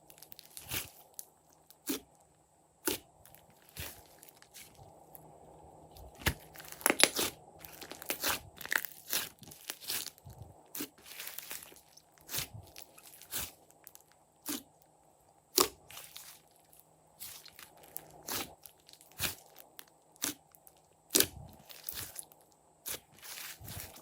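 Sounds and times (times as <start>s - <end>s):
slime crackling and popping: 6.0s - 14.7s, 15.5s - 24.0s.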